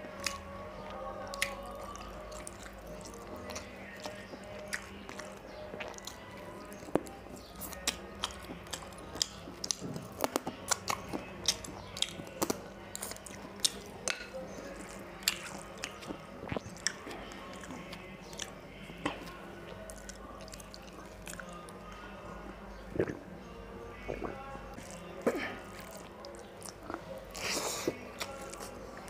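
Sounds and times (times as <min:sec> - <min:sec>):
man chewing with wet mouth sounds: 0:00.0 - 0:23.3, 0:24.0 - 0:29.0.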